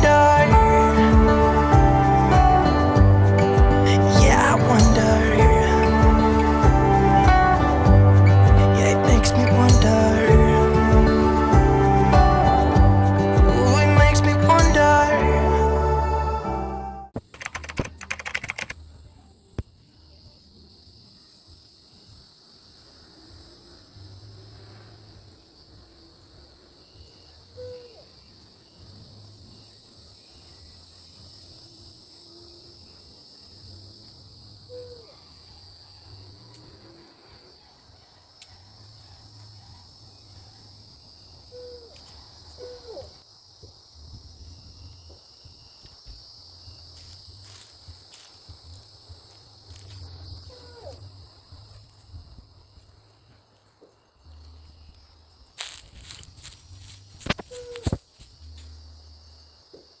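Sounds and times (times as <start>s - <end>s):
crickets trilling: 0.0s - 60.0s
sharp clicks and knocks: 17.2s - 18.8s
owl hooting: 27.4s - 28.3s, 34.6s - 36.1s, 41.5s - 43.2s, 50.4s - 51.0s, 57.3s - 58.0s.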